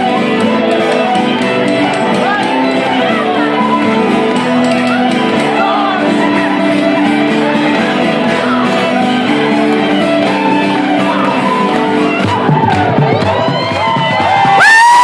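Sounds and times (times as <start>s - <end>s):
fiddle: 0.0s - 15.0s
guitar: 0.0s - 15.0s
crowd whooping and shouting: 4.7s - 15.0s
flute: 8.4s - 15.0s.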